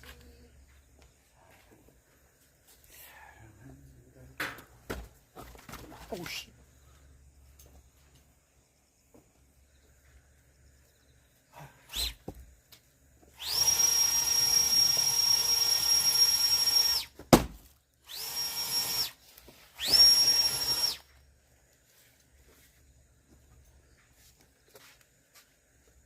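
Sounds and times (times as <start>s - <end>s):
power tool motor whining: 13.3s - 17.2s, 18.1s - 21.1s.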